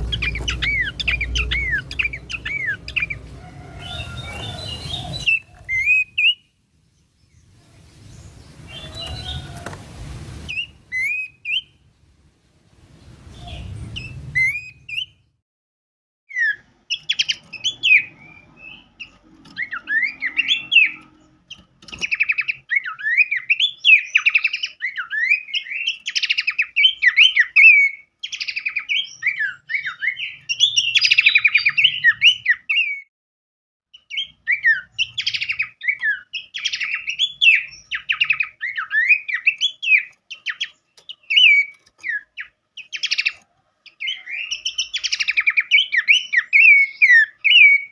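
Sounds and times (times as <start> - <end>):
harsh raspy bird calls: 0.0 - 6.5
rapid bird chirps and trills: 0.0 - 9.6, 10.4 - 11.8, 13.0 - 15.4, 16.3 - 33.0, 33.9 - 47.9.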